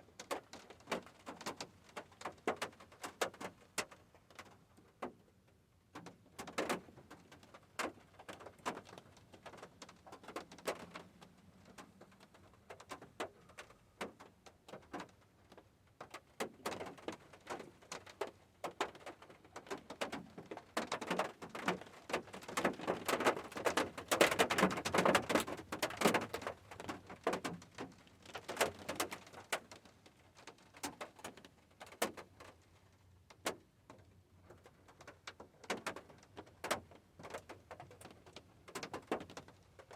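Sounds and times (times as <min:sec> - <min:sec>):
rain dripping on hard surface: 0:05.9 - 0:39.9.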